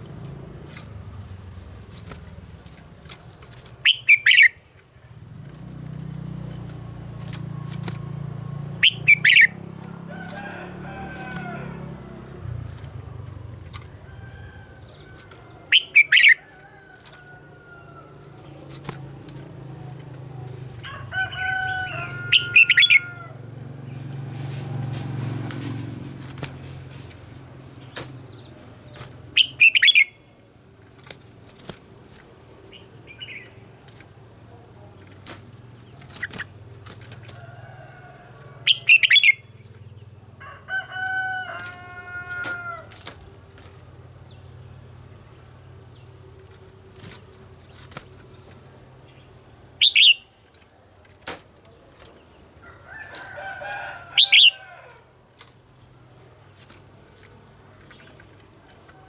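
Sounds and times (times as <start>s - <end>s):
bird song bursts: 0.0s - 31.6s, 32.6s - 34.2s, 38.1s - 40.2s, 41.6s - 58.4s
rooster crowing: 8.1s - 18.5s, 19.5s - 29.0s, 37.3s - 39.3s, 40.3s - 43.4s, 52.6s - 55.2s.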